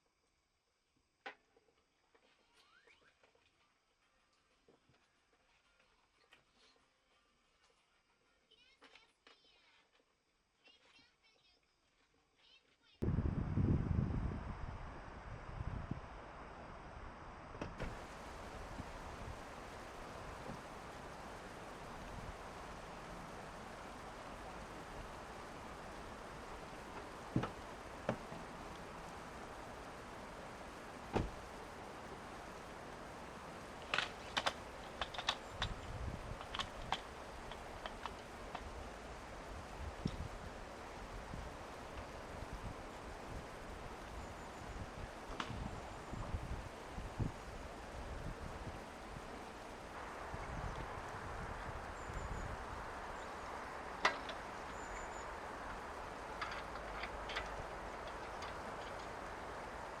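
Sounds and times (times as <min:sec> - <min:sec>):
rushing water: 0:17.8 - 1:00.0
low thump: 0:31.1 - 0:31.4.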